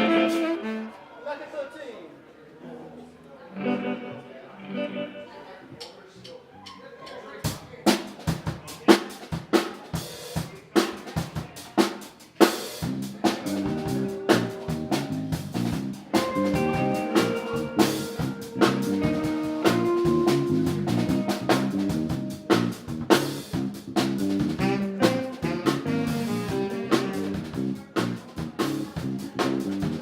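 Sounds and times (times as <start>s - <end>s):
drum kit groove: 0.0s - 0.8s, 7.4s - 30.0s
bass guitar: 0.0s - 0.9s, 12.8s - 30.0s
held instrument notes: 0.0s - 1.0s, 24.6s - 27.6s.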